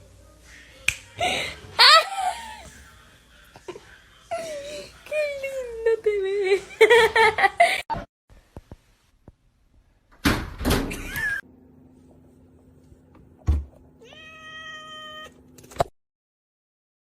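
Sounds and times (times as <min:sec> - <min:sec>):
cat meowing: 0:14.0 - 0:15.4.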